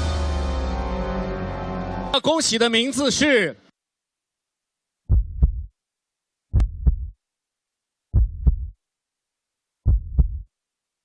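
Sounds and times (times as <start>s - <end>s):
heartbeat double thumps: 5.1s - 5.7s, 6.5s - 7.2s, 8.1s - 8.8s, 9.8s - 10.5s.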